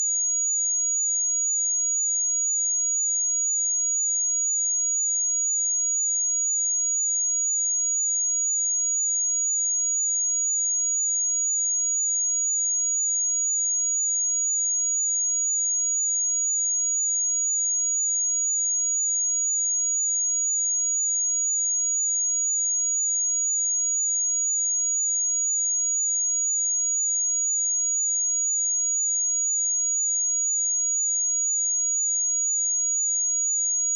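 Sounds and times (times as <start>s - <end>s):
high-pitched sine-wave test tone: 0.0s - 33.9s.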